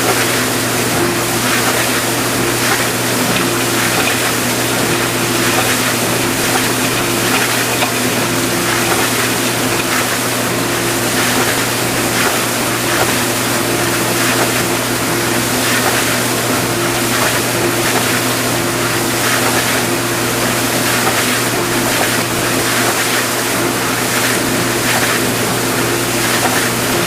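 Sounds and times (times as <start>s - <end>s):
dishwasher motor and pump hum: 0.0s - 27.0s.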